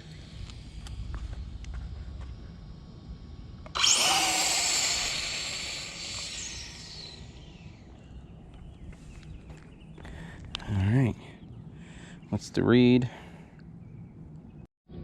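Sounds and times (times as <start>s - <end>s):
high electric motor whine: 0.0s - 10.5s.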